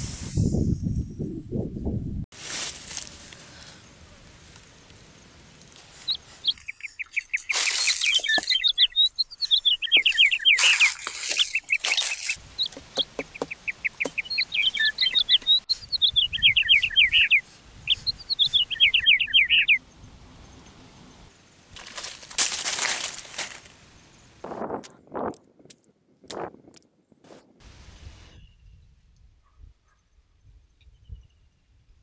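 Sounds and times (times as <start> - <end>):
bird chirping rapidly: 6.0 - 20.0
loud rustling: 21.8 - 23.7.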